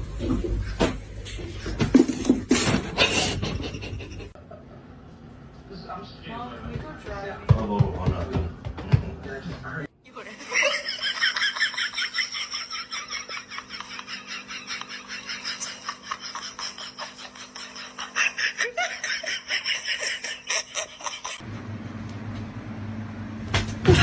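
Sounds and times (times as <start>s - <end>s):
high-pitched laughter: 10.3s - 21.4s.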